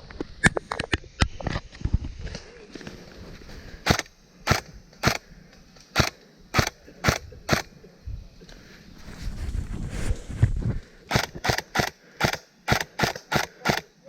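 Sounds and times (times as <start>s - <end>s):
airsoft gun shots: 3.8s - 5.2s, 6.0s - 7.7s, 11.1s - 13.9s
low muffled rumble: 7.2s - 11.1s.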